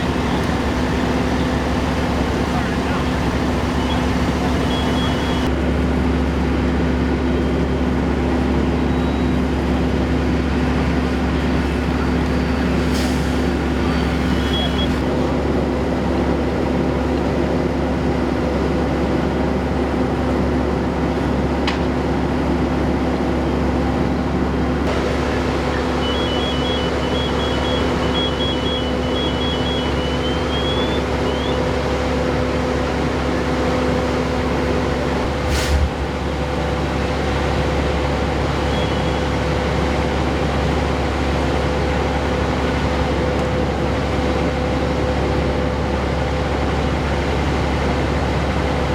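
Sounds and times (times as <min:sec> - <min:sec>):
engine idling: 0:00.0 - 0:05.5, 0:24.9 - 0:43.2.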